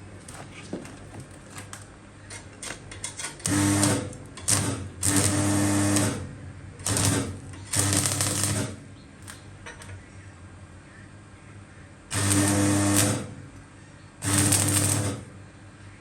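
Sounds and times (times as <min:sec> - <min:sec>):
steady electrical hum: 0:00.0 - 0:16.0
arc welder buzzing crackle: 0:02.6 - 0:09.5, 0:12.1 - 0:15.4.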